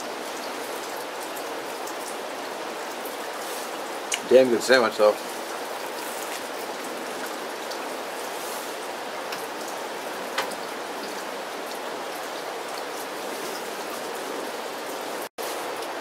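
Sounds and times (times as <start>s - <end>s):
steady rain: 0.0s - 16.0s
raindrop ticks: 4.0s - 7.9s, 9.2s - 14.0s.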